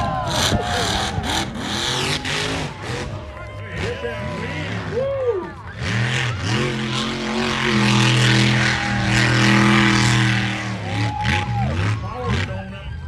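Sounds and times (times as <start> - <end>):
monster truck engine revving high: 0.0 - 13.0.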